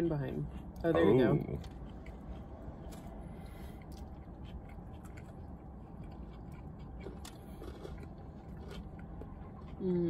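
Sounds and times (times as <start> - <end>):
low background rumble: 0.0 - 10.0
people chewing food: 0.0 - 10.0.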